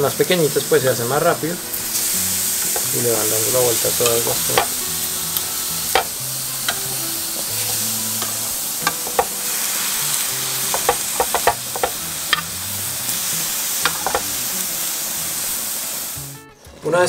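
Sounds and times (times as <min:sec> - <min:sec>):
eggplant sizzling on grill pan: 0:00.0 - 0:16.4
metal tongs clicking on pan: 0:04.0 - 0:04.8, 0:05.9 - 0:09.4, 0:10.1 - 0:12.5.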